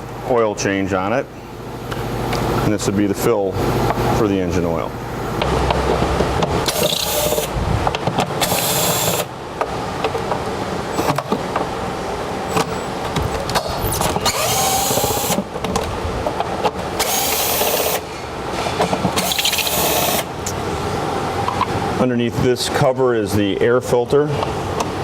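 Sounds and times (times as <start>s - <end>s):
workshop noise: 0.0s - 25.0s
power tool running in bursts: 6.6s - 7.6s, 8.4s - 9.3s, 13.8s - 15.5s, 17.0s - 18.2s, 19.2s - 20.3s.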